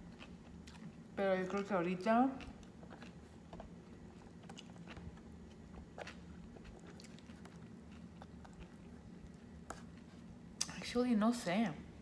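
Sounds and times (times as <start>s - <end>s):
person chewing food: 0.0s - 1.7s, 2.3s - 10.7s
low steady hum: 0.0s - 12.0s.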